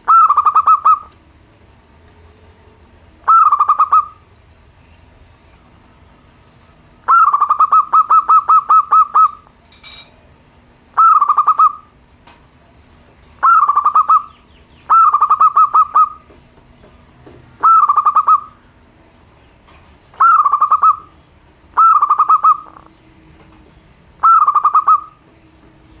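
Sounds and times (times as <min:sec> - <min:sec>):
dove cooing: 0:00.0 - 0:01.2, 0:03.2 - 0:04.3, 0:07.1 - 0:09.5, 0:11.0 - 0:12.0, 0:13.4 - 0:16.4, 0:17.5 - 0:18.7, 0:20.1 - 0:23.0, 0:24.2 - 0:25.3.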